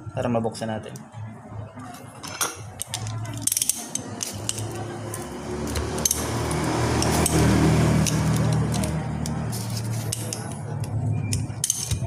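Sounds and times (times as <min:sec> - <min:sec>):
metallic clicks of hand tools: 0:02.8 - 0:12.0.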